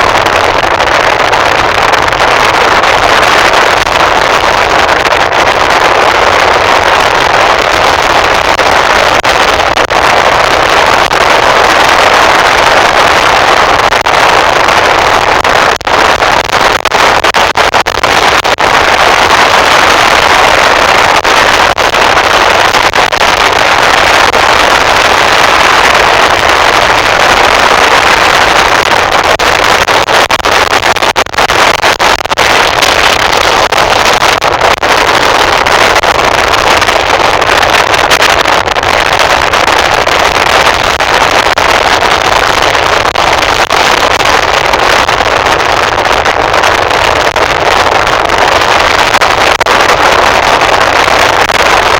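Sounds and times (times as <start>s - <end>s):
microphone crackles: 0.0s - 51.9s
wind and road noise: 0.0s - 51.9s.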